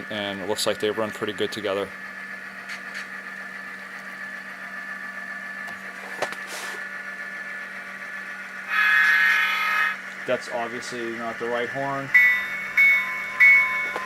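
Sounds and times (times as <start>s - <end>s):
model diesel engine sound: 0.0s - 14.0s
train horn sound: 8.7s - 10.0s.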